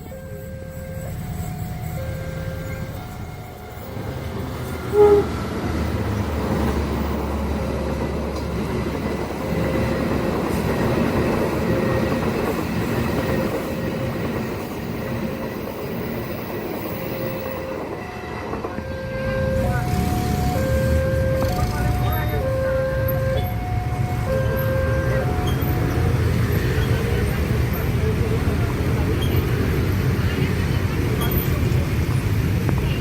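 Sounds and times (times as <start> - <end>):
two-note crossing warning alarm: 0.0 - 5.4, 16.2 - 26.5
train engine hum: 0.0 - 33.0
train wheels rumbling on rails: 0.0 - 33.0
train horn blast: 0.2 - 5.7, 16.9 - 26.7.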